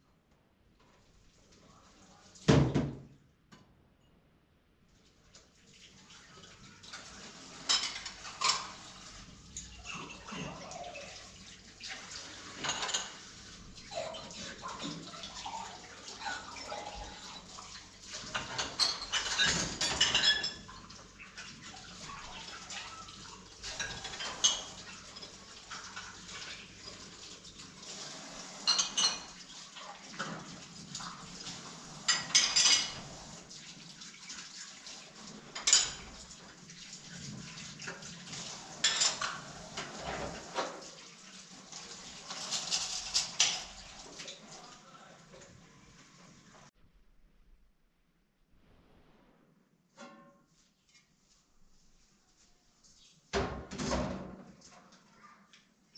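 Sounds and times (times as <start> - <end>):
pots and dishes clattering: 6.4 - 33.5, 35.1 - 41.0, 41.7 - 44.4, 50.0 - 50.5.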